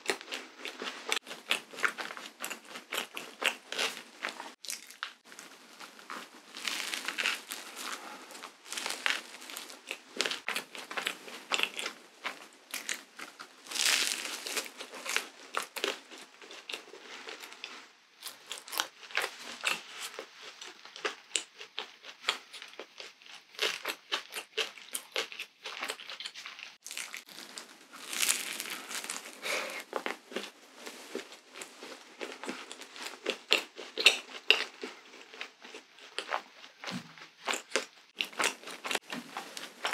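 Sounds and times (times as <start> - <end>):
chewing crisp waffle: 0.0 - 39.9
wrapper crinkling: 4.6 - 10.5, 13.6 - 15.3, 26.8 - 31.3.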